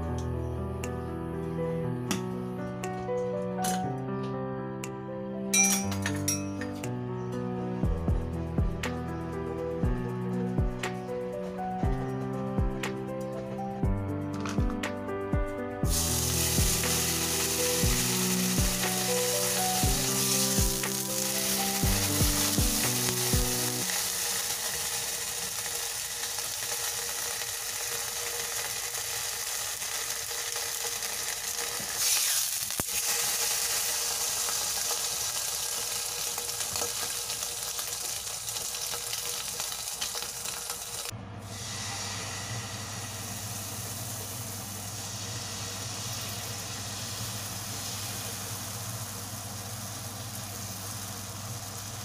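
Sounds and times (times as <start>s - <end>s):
ham sizzling in a frying pan: 15.8s - 52.0s.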